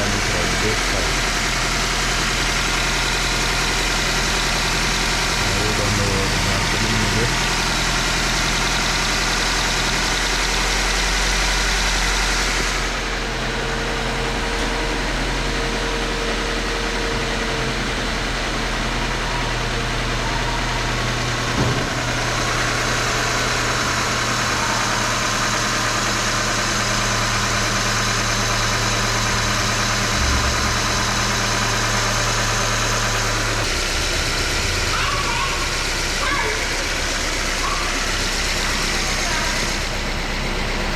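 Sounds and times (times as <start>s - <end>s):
car engine idling: 0.0s - 40.9s
short engine knock: 14.4s - 24.4s, 29.5s - 39.8s.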